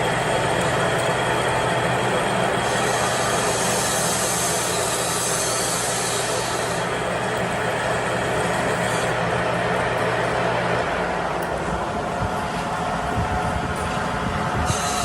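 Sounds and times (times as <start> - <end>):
machine humming: 0.0 - 15.0
hiss: 2.6 - 6.9, 14.6 - 15.0.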